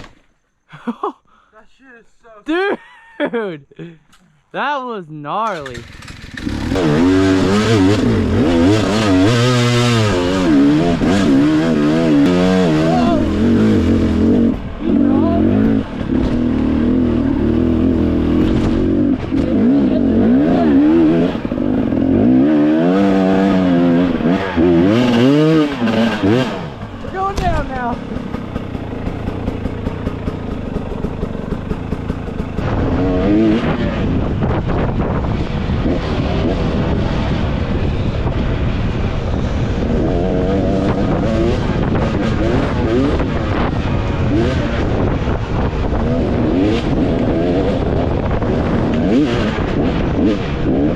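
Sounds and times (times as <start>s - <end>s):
dirt bike engine revving: 5.5s - 50.9s
wind on microphone: 32.6s - 50.9s.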